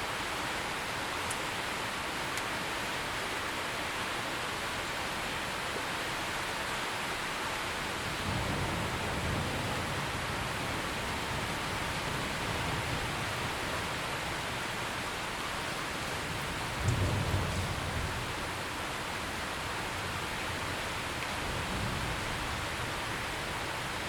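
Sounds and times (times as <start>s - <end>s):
heavy rain falling: 0.0s - 24.0s
low rumble of thunder: 8.1s - 14.0s, 16.2s - 18.6s, 21.4s - 24.0s.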